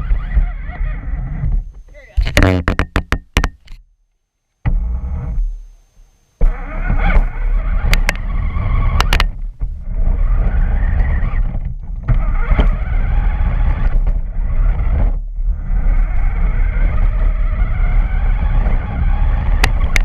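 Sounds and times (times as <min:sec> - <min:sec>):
toy truck motor and wheel noise: 0:00.0 - 0:02.7, 0:06.4 - 0:20.0
sharp clicks: 0:09.0 - 0:09.4.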